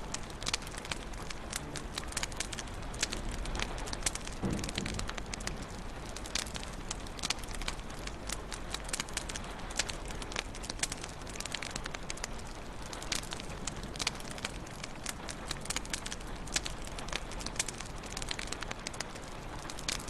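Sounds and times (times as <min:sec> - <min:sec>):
wood fire crackling: 0:00.0 - 0:20.0
fire hissing: 0:00.1 - 0:19.9
soft low thump: 0:04.4 - 0:05.4.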